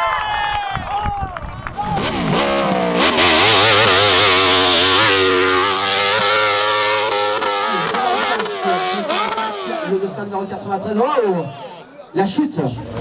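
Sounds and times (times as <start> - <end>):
motorcycle engine revving hard: 1.7 - 10.4.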